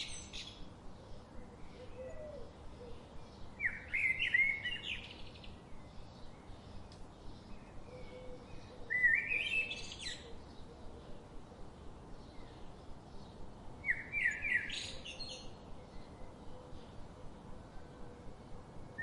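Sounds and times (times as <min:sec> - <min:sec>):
faint bird chirping: 0:00.0 - 0:19.0
songbird warbling: 0:07.6 - 0:10.5.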